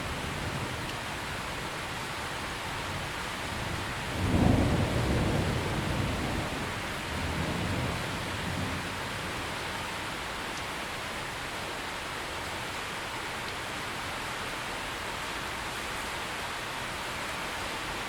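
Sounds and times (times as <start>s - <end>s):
steady rain: 0.0s - 18.0s
thunder rumble: 3.0s - 9.8s.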